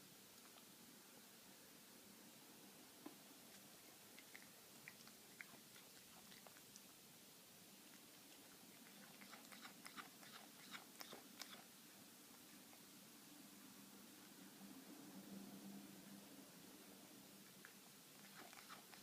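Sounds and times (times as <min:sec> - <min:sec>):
cat chewing with clicks: 0:03.5 - 0:07.1, 0:07.8 - 0:11.7, 0:17.5 - 0:19.0.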